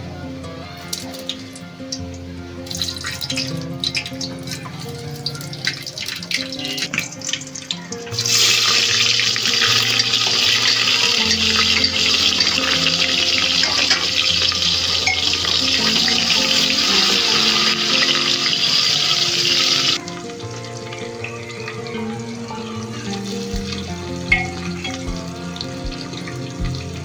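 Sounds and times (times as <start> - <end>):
soft background music: 0.0 - 27.0
water drips and clinks: 2.7 - 27.0
tap water running into sink: 23.2 - 27.0.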